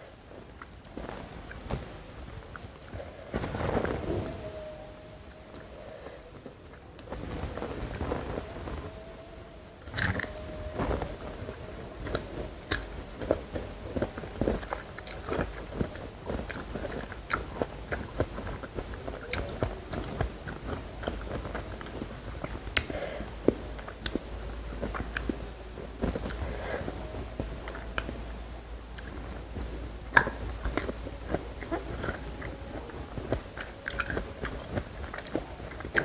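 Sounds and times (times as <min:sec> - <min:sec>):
person chewing crunchy food: 0:09.8 - 0:36.0.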